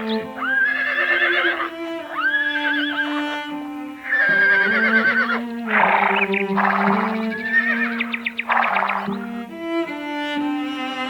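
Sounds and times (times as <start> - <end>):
music with long held notes: 0.0 - 11.0
horse whinnying: 0.4 - 3.2, 4.0 - 9.2.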